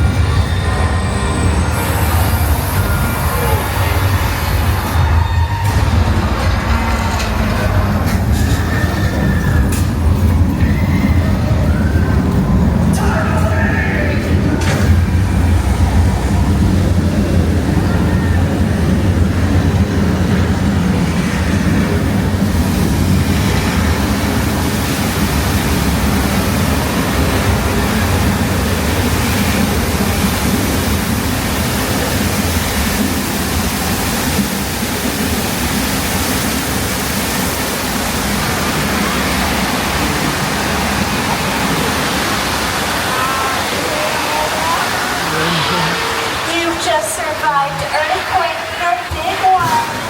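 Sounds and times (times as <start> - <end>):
tram rumbling: 0.0 - 50.0.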